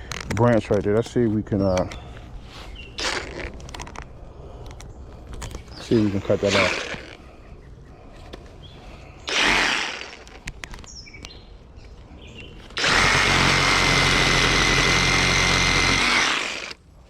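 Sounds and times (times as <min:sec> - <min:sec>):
reciprocating saw cutting branch: 0:03.0 - 0:03.6, 0:05.9 - 0:07.2, 0:09.3 - 0:10.4, 0:12.7 - 0:16.8.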